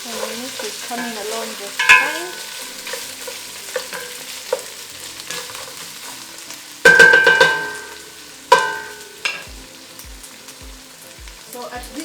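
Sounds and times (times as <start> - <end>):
beef sizzling in a pot: 0.0 - 12.0
metallic clanks on a pot: 0.1 - 5.8, 6.8 - 9.5.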